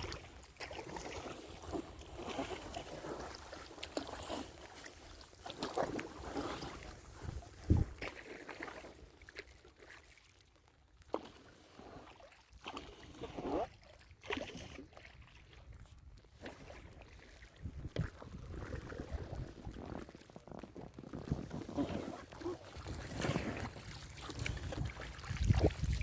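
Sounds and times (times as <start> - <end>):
paddle splashing in water: 0.0 - 26.0
wind rumbling on microphone: 6.6 - 8.0, 17.6 - 21.6, 24.3 - 26.0.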